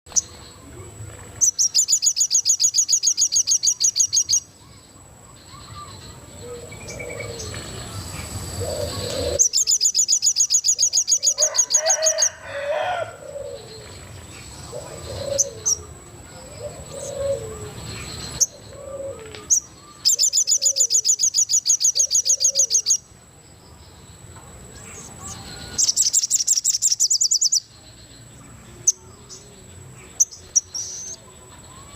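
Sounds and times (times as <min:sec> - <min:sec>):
songbird rapid rattling song: 0:00.1 - 0:00.6, 0:01.3 - 0:31.9
soft low bird calls: 0:00.1 - 0:23.1.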